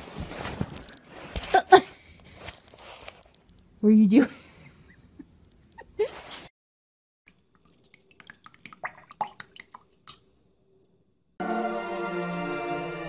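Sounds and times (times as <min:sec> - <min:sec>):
music: 0:11.4 - 0:13.0.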